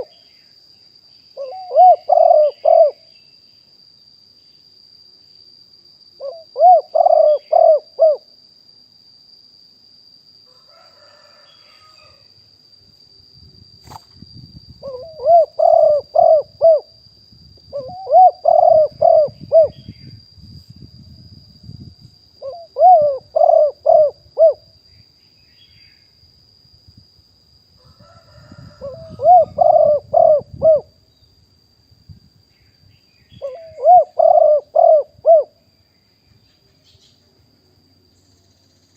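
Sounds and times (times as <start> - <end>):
dove cooing: 1.4 - 3.1, 6.2 - 8.2, 14.8 - 16.9, 17.7 - 19.9, 22.4 - 24.7, 28.4 - 31.0, 33.4 - 35.6.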